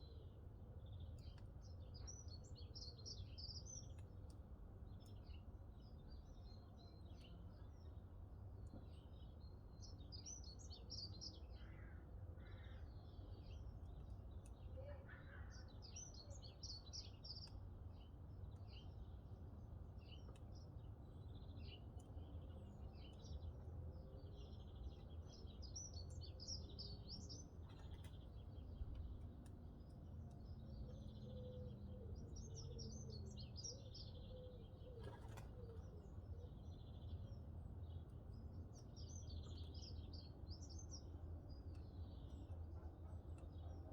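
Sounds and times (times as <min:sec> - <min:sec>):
songbirds twittering: 0:00.0 - 0:43.9.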